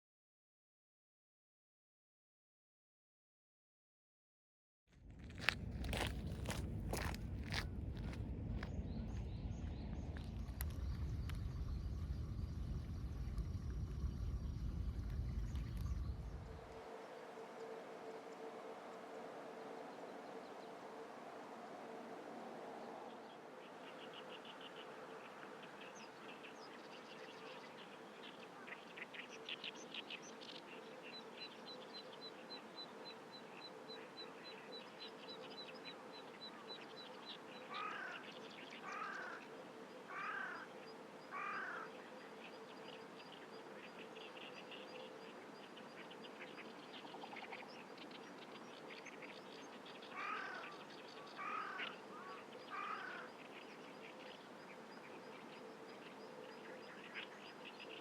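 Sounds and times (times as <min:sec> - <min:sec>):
birds chirping: 0:23.1 - 0:58.0
harsh caw-like bird calls: 0:37.7 - 0:39.5, 0:40.1 - 0:40.7, 0:41.3 - 0:42.0, 0:50.1 - 0:53.4.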